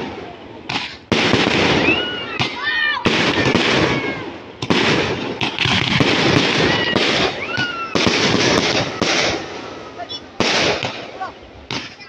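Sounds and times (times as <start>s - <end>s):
firework bangs: 0.0s - 12.0s
fireworks crackling and popping: 0.0s - 12.0s.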